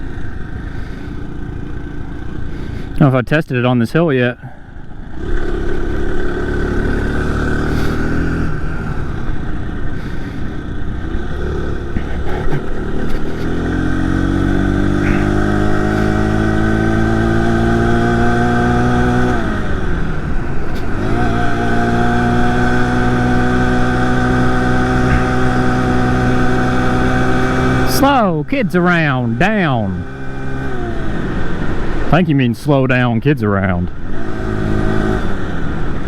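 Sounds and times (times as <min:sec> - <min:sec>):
small engine revving under load: 0:05.1 - 0:09.4, 0:10.0 - 0:28.0.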